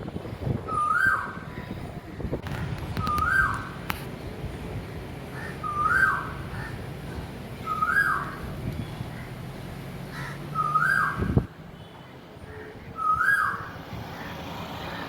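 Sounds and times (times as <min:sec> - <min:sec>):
low outdoor rumble: 0:00.0 - 0:15.0
bird whistled call: 0:00.7 - 0:01.3, 0:03.0 - 0:03.6, 0:05.6 - 0:06.4, 0:07.6 - 0:08.4, 0:10.6 - 0:11.3, 0:13.0 - 0:13.7.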